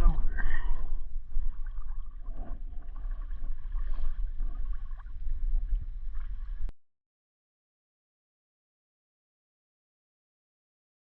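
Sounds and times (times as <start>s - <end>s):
low rumble on microphone: 0.0s - 6.7s
water lapping against hull: 0.0s - 6.7s.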